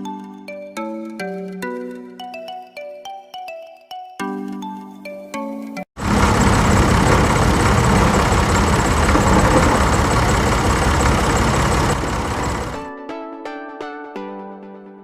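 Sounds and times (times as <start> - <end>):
engine running: 6.0 - 12.8.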